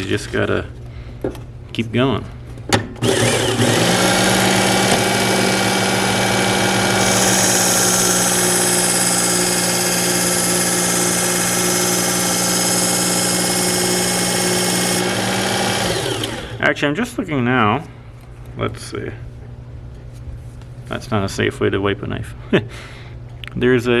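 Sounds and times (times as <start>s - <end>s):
knife sharpener motor hum: 3.0s - 16.6s.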